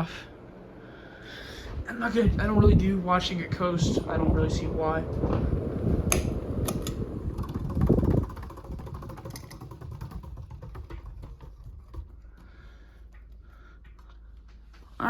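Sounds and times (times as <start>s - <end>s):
ceiling fan motor and air rush: 0.0s - 14.8s
fan blades ticking: 1.5s - 15.0s
switch clicks: 6.1s - 7.0s.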